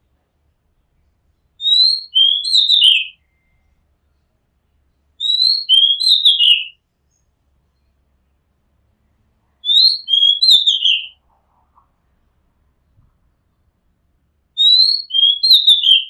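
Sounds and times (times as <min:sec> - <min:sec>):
bird singing whistled notes: 0:01.6 - 0:03.8, 0:05.2 - 0:07.2, 0:09.6 - 0:11.2, 0:14.6 - 0:16.0.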